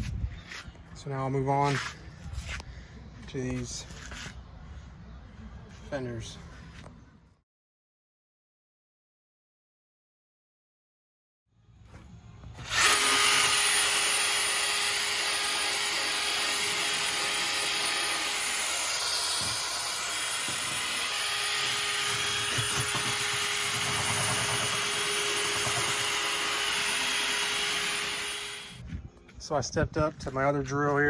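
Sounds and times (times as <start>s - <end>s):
drill brush scrubbing metal: 12.7s - 28.8s.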